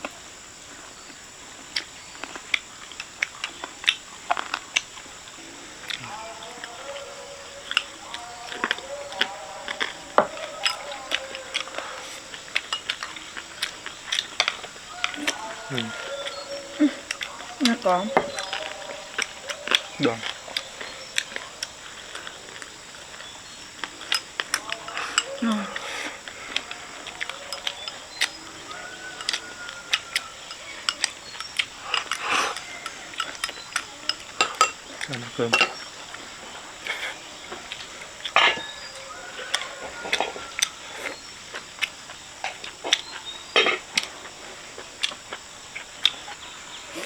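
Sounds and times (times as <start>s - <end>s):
chewing: 0.0s - 47.0s
utensils clicking against dishes: 6.1s - 36.2s.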